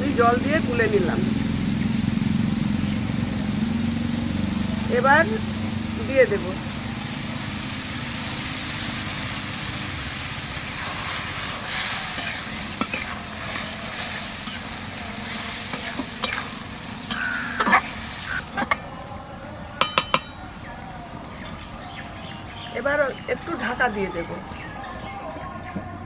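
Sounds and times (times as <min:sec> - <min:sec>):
food sizzling in a wok: 0:00.0 - 0:18.9
metal spatula scraping wok: 0:10.3 - 0:18.9.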